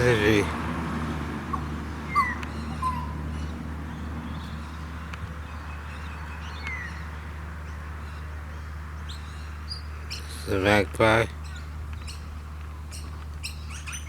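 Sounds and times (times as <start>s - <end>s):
birds chirping and whistling: 1.4s - 7.2s, 11.4s - 14.0s.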